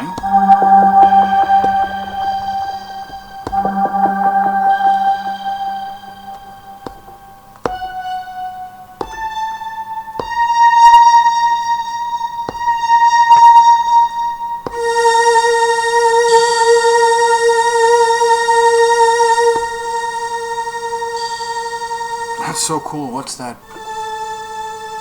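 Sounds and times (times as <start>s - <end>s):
synthesizer pad held notes: 0.0s - 25.0s
breathy hiss: 21.1s - 25.0s.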